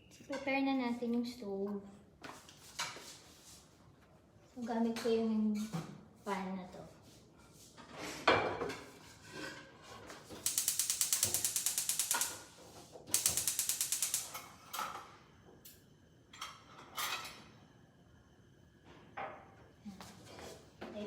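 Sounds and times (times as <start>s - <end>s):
gas stove igniter clicking: 10.4s - 14.5s.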